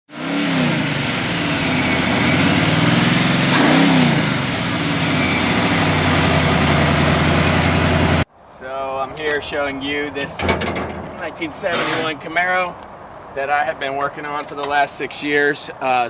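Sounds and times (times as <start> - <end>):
throttle blips revving engine: 0.1 - 8.2
vee eight engine idling: 0.2 - 8.2, 9.0 - 12.4.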